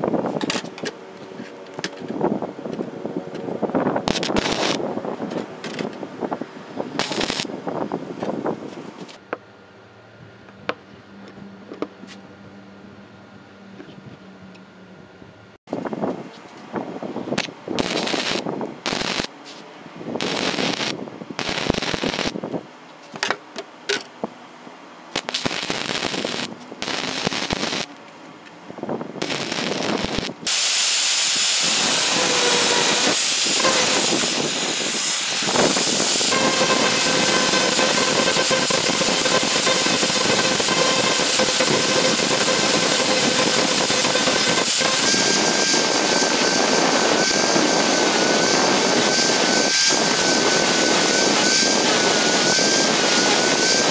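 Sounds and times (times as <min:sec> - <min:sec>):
electric power tool running: 0:04.1 - 0:04.8, 0:07.0 - 0:07.5, 0:20.2 - 0:22.4, 0:25.2 - 0:27.9, 0:29.2 - 0:30.6, 0:31.3 - 0:53.9.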